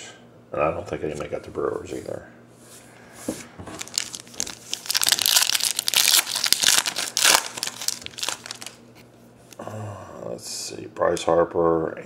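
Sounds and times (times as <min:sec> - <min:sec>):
wrapper crinkling: 0:03.7 - 0:08.9.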